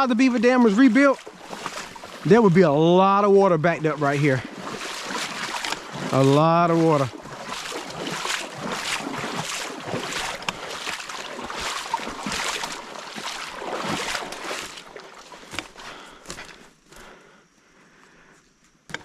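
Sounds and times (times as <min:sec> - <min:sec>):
footsteps through leaf litter: 0:04.0 - 0:15.6.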